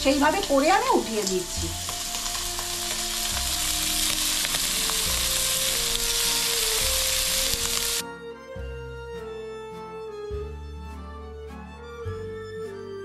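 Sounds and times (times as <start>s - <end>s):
prawns sizzling in hot oil: 0.0s - 8.0s
background music: 0.0s - 13.0s.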